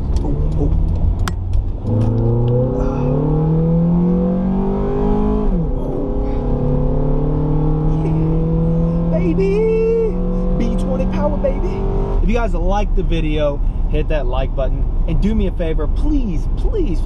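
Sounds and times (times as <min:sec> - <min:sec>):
car engine accelerating: 0:00.0 - 0:13.4.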